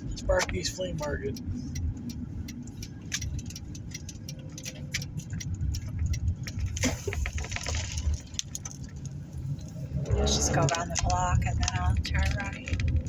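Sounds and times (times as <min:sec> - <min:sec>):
car cabin and road rumble: 0:00.0 - 0:13.0
car turn signal ticking: 0:00.0 - 0:13.0
rustling and rattling: 0:03.0 - 0:13.0.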